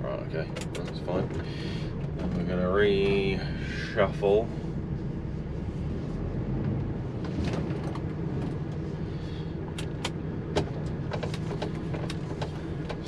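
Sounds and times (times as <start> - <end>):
diesel engine running at low revs: 0.0 - 13.0.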